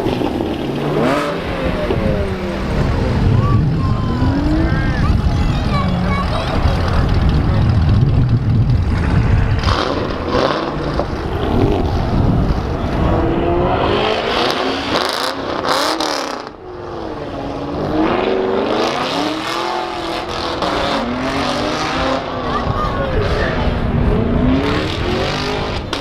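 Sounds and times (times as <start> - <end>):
deep exhaust rumble: 0.0 - 14.1
car engine revving: 0.0 - 26.0.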